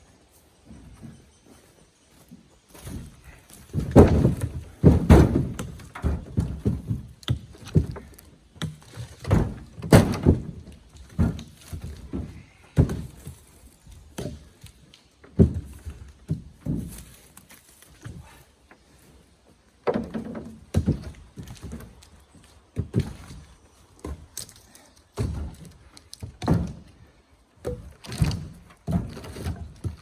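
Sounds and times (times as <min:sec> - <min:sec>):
firewood blocks thudding: 0:02.7 - 0:13.4, 0:25.2 - 0:26.9.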